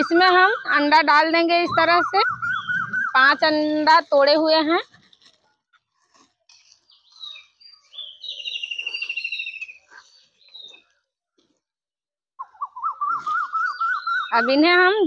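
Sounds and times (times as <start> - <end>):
bird trill: 0.0 - 3.5, 6.9 - 10.9, 12.4 - 14.6
small birds chirping: 0.0 - 3.8, 6.5 - 11.2, 12.4 - 14.8.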